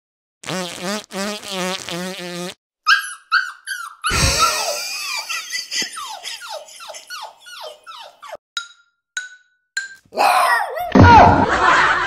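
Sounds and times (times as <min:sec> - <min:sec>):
small dog yelping: 0:02.9 - 0:04.2.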